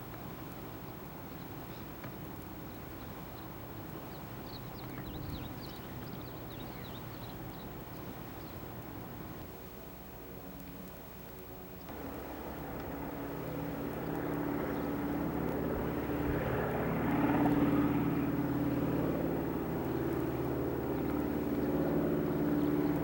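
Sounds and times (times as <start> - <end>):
engine humming: 11.9 - 23.0.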